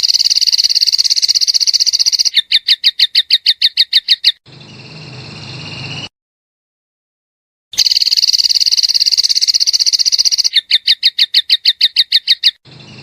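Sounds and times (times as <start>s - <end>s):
bird buzzing trill: 0.0s - 2.4s, 7.8s - 10.6s.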